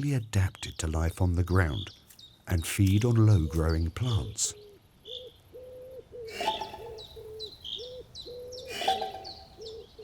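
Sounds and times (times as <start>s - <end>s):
harsh bird calls: 0.0s - 10.0s
bird chirps: 0.2s - 10.0s
bird hooting notes: 4.6s - 10.0s.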